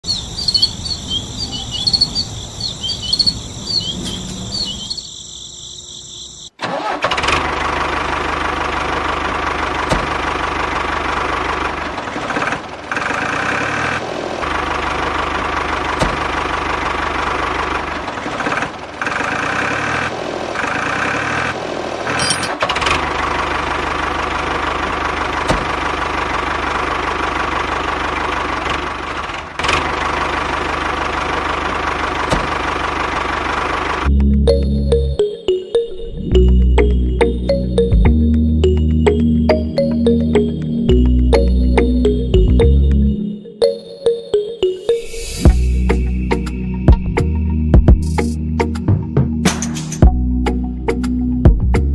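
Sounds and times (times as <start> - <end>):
crickets chirping: 0.0 - 6.6, 45.6 - 48.2
engine starting and running: 6.4 - 51.9.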